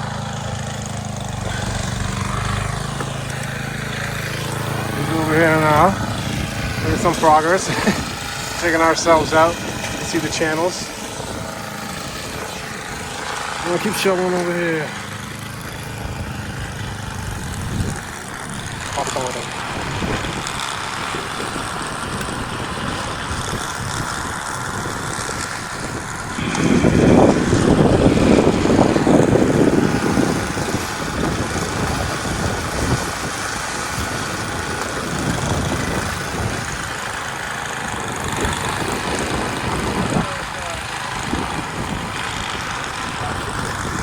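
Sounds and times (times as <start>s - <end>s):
engine-like hum: 0.0s - 44.0s
rough rush of sound: 1.2s - 11.6s.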